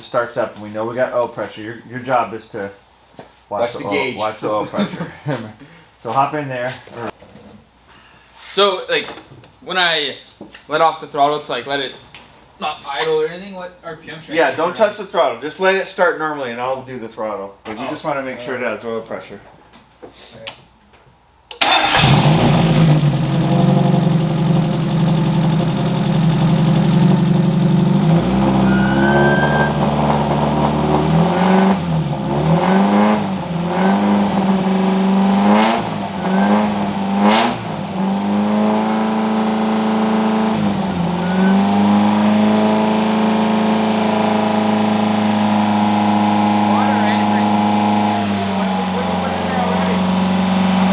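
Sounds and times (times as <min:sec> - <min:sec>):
car engine fast idle and revving: 0:21.6 - 0:50.9.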